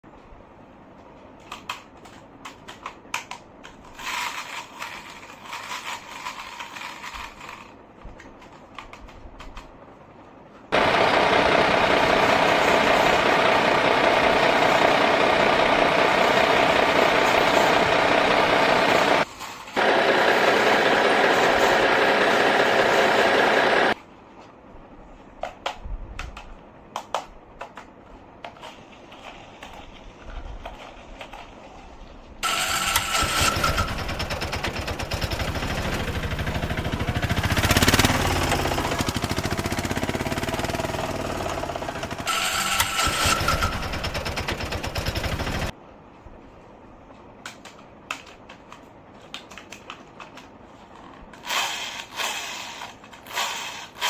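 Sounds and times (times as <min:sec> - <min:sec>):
small motor running: 0:10.8 - 0:19.2, 0:19.8 - 0:24.0, 0:32.4 - 0:45.7.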